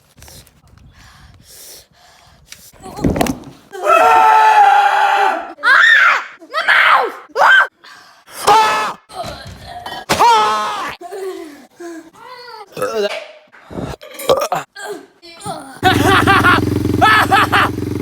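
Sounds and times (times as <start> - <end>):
person screaming and wailing: 3.8 - 7.7, 10.1 - 11.2, 15.5 - 17.8.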